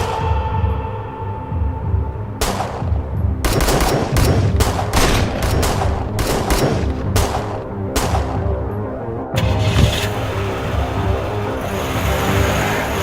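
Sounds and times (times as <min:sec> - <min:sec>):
rapid gunfire: 0:03.4 - 0:08.4.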